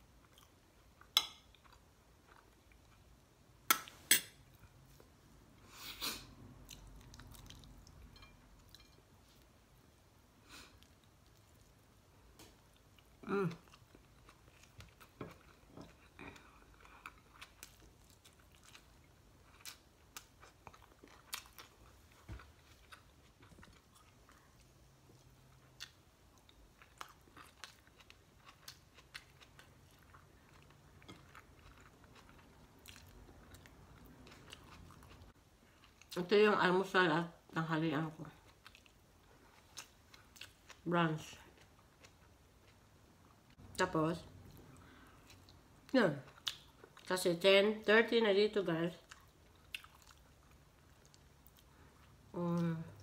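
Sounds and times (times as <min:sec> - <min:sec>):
person chewing food: 0:00.2 - 0:03.2, 0:06.5 - 0:09.4, 0:10.6 - 0:36.2, 0:38.4 - 0:40.8, 0:41.4 - 0:43.6, 0:44.4 - 0:47.1, 0:49.0 - 0:53.0.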